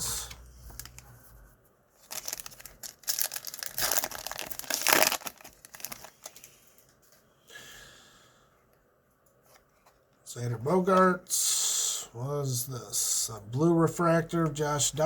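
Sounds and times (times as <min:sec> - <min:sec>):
card pack wrapper tearing: 0:02.0 - 0:06.5.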